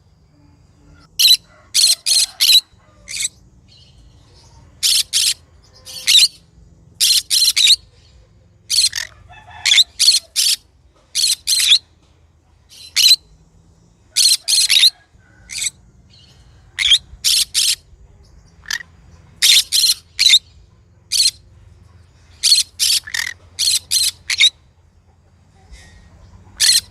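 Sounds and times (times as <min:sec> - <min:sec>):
parrot screeching: 0:01.1 - 0:03.3, 0:04.8 - 0:06.4, 0:08.7 - 0:10.6, 0:14.2 - 0:14.9, 0:26.6 - 0:26.9.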